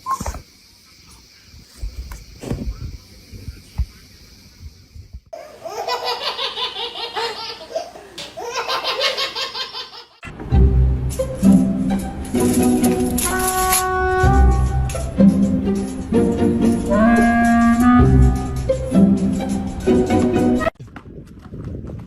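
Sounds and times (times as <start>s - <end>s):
soft low thumps: 1.8s - 4.0s.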